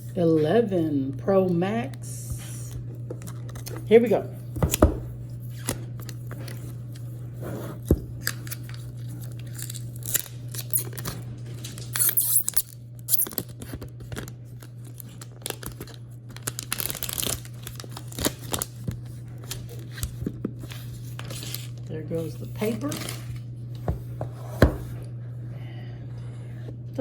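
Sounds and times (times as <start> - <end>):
steady low hum: 0.0 - 27.0
packaging crinkling and tearing: 8.2 - 23.5
loud tearing rips: 9.4 - 13.6, 14.9 - 18.7.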